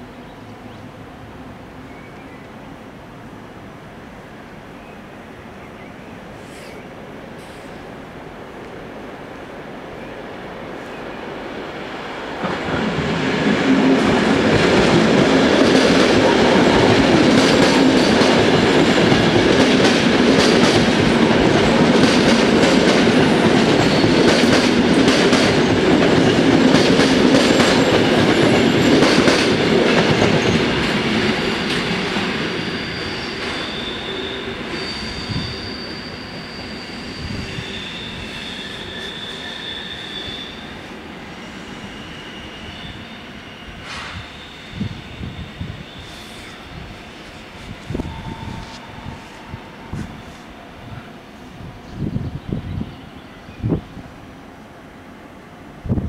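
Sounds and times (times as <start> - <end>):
electric train rumbling and rattling: 0.0 - 56.0
high metallic squealing: 32.0 - 51.0.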